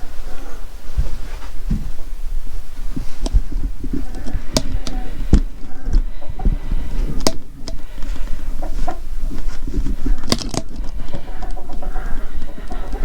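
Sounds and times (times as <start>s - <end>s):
chickens clucking: 0.0s - 13.0s
steady low rumble: 0.0s - 13.0s.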